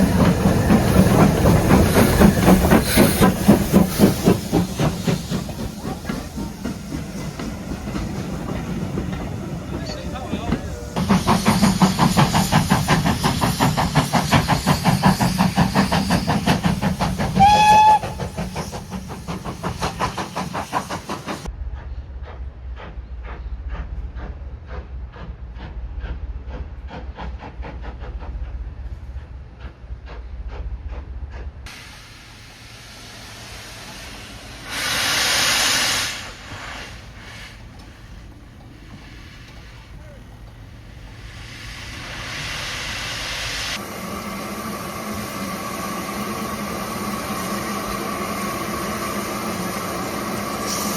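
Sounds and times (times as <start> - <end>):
steam hiss burst: 0.0 - 21.5, 31.7 - 50.9
steam locomotive exhaust beats: 0.0 - 50.9
steam whistle blast: 17.4 - 18.3.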